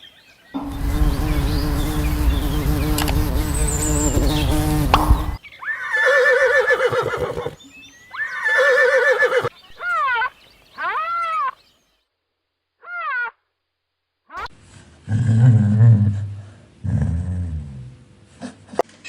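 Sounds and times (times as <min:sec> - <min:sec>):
steady buzz: 0:00.6 - 0:05.4
horse whinnying: 0:05.6 - 0:07.6, 0:08.2 - 0:09.5.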